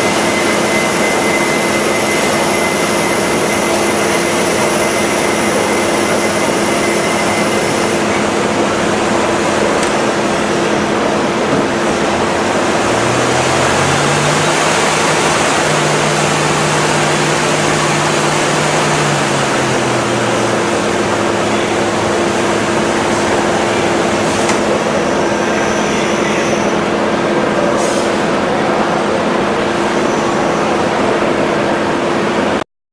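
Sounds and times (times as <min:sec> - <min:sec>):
low motor tone: 0:00.0 - 0:25.3
milling machinery running: 0:00.0 - 0:27.6.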